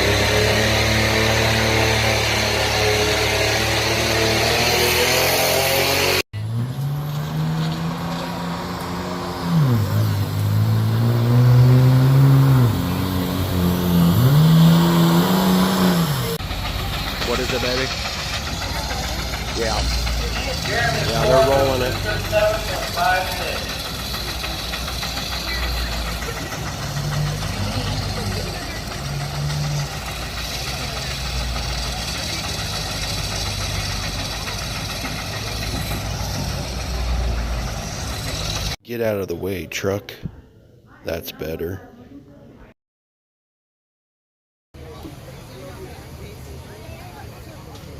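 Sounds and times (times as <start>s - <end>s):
engine changing speed: 0.0s - 38.8s
road noise hiss: 7.4s - 38.8s.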